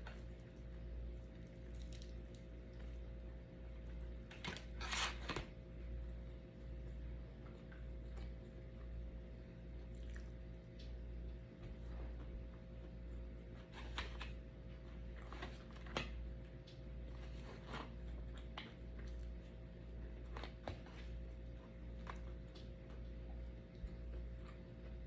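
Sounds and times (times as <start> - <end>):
steady low hum: 0.0 - 25.0
mouth chewing smacks: 9.8 - 10.9.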